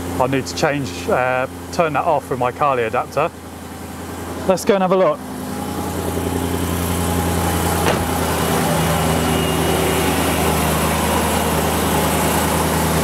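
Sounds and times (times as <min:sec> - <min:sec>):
car engine idling: 0:00.0 - 0:13.0
sharp knock: 0:07.8 - 0:08.2.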